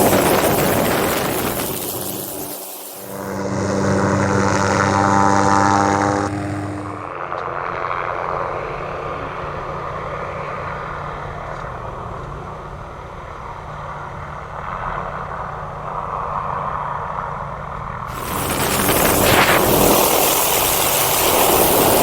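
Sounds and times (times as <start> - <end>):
helicopter rotors running: 0.0 - 9.0, 18.1 - 22.0.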